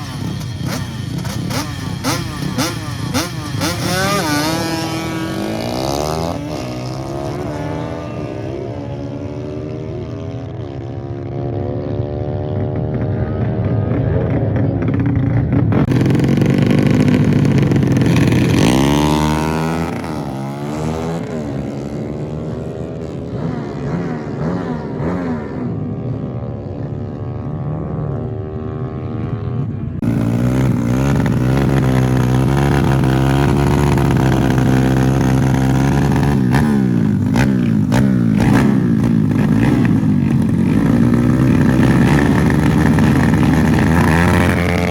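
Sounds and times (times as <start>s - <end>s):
motorcycle engines revving: 0.0s - 44.9s.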